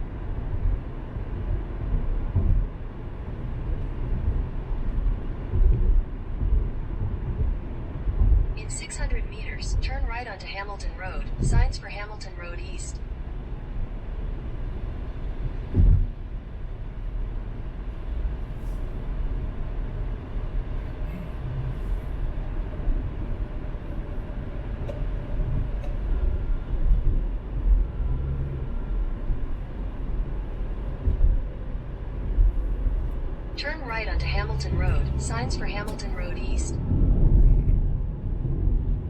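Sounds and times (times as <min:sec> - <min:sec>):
car road and engine rumble: 0:00.0 - 0:39.0
short low thumps: 0:02.2 - 0:02.8.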